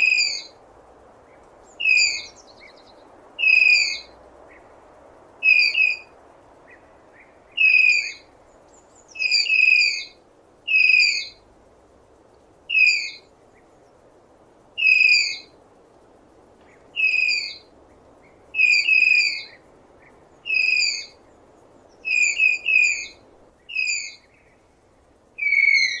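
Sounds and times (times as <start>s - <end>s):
faint background hiss: 0.0s - 26.0s
tapir whistling squeals: 25.4s - 26.0s.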